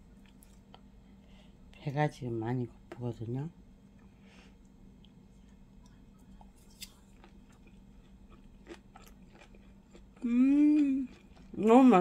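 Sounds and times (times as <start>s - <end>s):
faint chewing with crunches: 0.1s - 0.9s, 4.0s - 12.0s.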